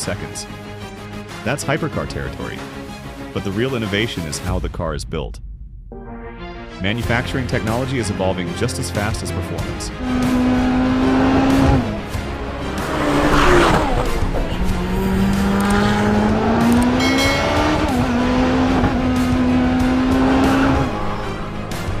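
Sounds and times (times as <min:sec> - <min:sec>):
background music: 0:00.0 - 0:22.0
car engine revving: 0:09.6 - 0:22.0
tire noise rush: 0:09.9 - 0:22.0.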